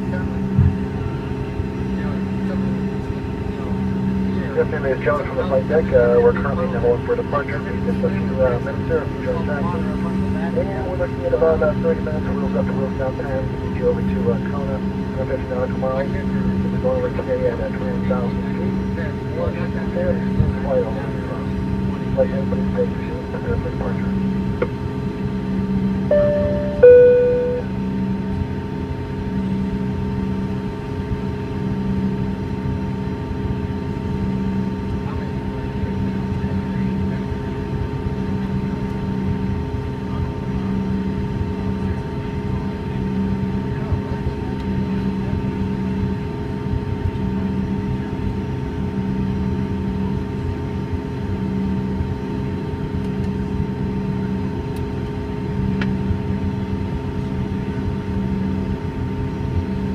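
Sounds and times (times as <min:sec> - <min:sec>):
jet engines idling with whine: 0:00.0 - 0:59.9
two-tone cabin chime: 0:26.1 - 0:27.8.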